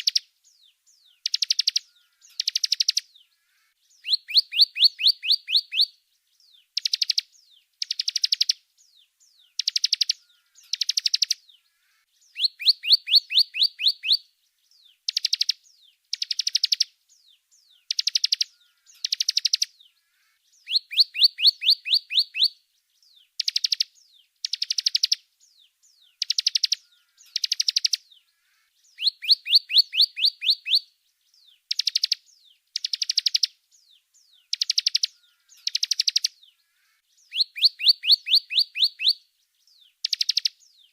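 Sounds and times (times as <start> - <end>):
songbird chirping: 0.0 - 40.9.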